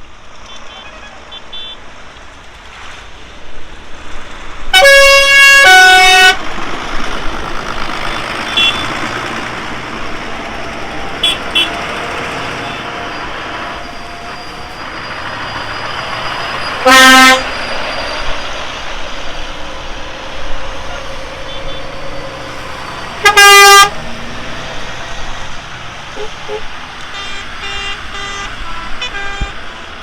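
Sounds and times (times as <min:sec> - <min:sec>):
tractor engines: 0:00.0 - 0:30.0
vehicle horn blasts: 0:00.5 - 0:01.8, 0:04.8 - 0:06.4, 0:08.4 - 0:09.4, 0:10.7 - 0:13.1, 0:16.8 - 0:17.6, 0:20.9 - 0:21.9, 0:23.2 - 0:24.0, 0:26.2 - 0:29.8.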